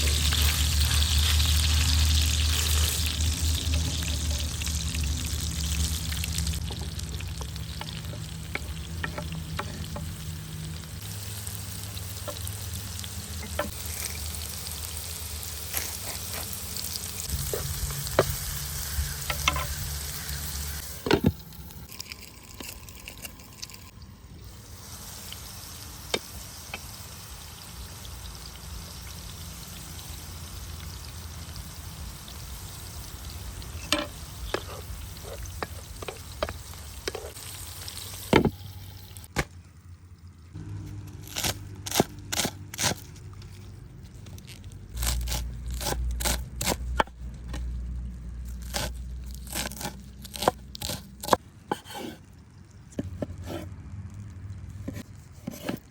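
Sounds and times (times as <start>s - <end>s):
food sizzling in a pan: 0.0s - 39.3s.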